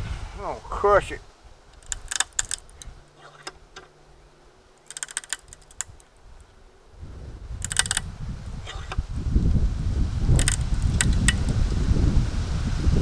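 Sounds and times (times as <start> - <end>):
sharp clicks and clatters: 1.7 - 3.9, 4.8 - 6.1, 7.6 - 8.1, 10.3 - 11.5
sharp cracks: 1.7 - 3.9, 4.7 - 6.5, 7.6 - 8.1, 10.3 - 11.6.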